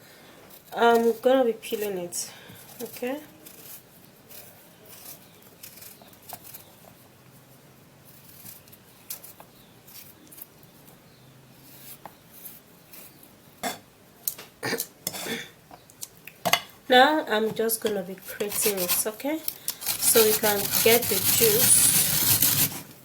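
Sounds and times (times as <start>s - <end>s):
blade scraping potato skin: 0.6s - 7.1s, 8.0s - 10.8s, 18.0s - 23.0s.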